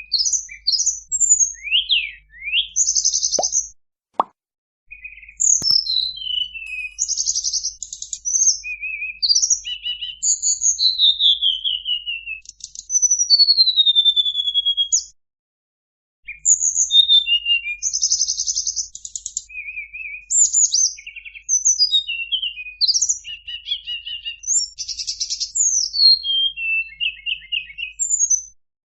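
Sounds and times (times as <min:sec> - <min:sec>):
bird singing whistled phrases: 0:00.0 - 0:03.5, 0:04.9 - 0:12.5, 0:19.4 - 0:28.6.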